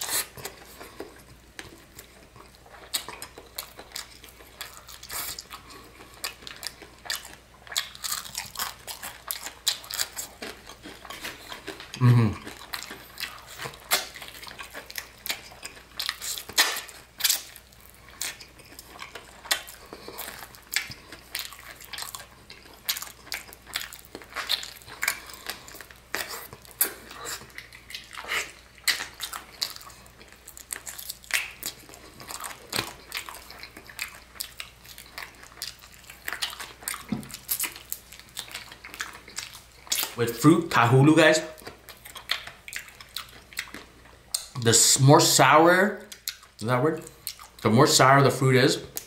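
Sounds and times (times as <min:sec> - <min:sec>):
crunchy biting and chewing: 0:00.0 - 0:44.6.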